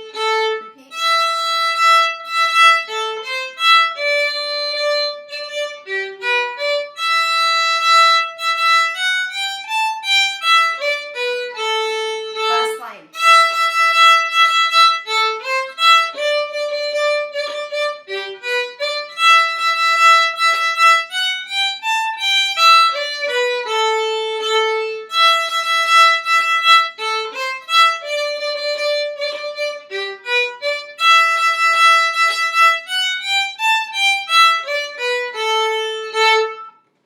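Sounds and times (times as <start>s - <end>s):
solo violin melody: 0.0s - 36.8s.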